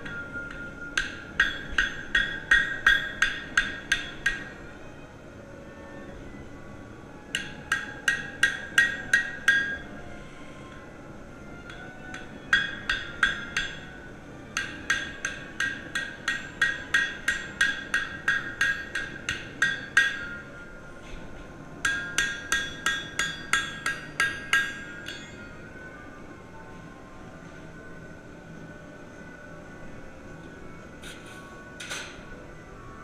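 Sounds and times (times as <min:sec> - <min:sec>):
hammer striking steel: 0:00.0 - 0:04.5, 0:07.3 - 0:09.8, 0:11.7 - 0:14.0, 0:14.6 - 0:20.4, 0:21.8 - 0:25.5.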